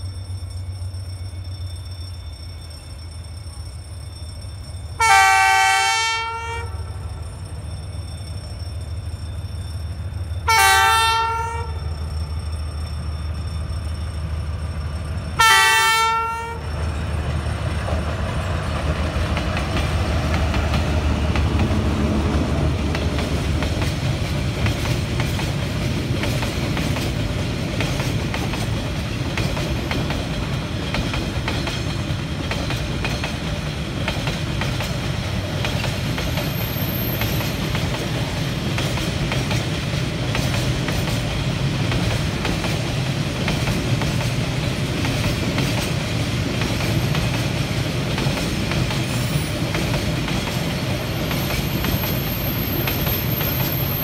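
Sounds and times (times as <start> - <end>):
freight train rumbling past: 0.0 - 54.0
locomotive horn blasts: 5.0 - 6.9, 10.5 - 11.8, 15.4 - 16.7
wheels clacking over rail joints: 16.8 - 54.0.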